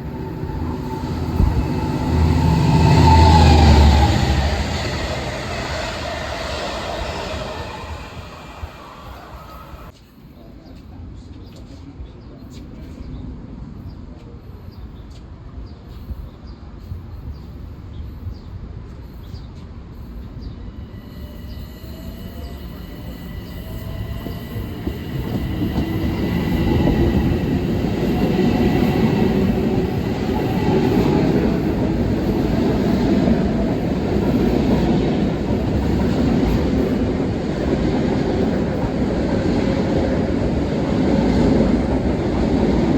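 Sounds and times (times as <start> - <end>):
high whine: 0.0 - 9.9
train rumbling on tracks: 0.0 - 10.1, 10.9 - 42.9.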